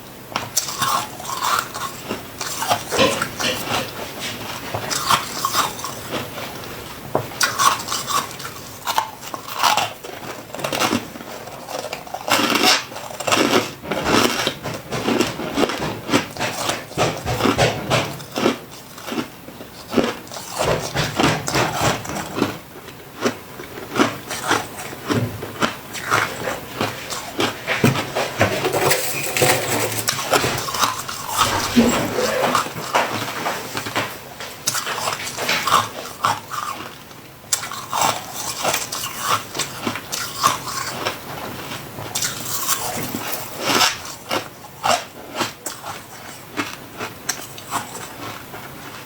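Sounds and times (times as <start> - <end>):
frost being chewed: 7.4 - 33.3, 34.6 - 49.0.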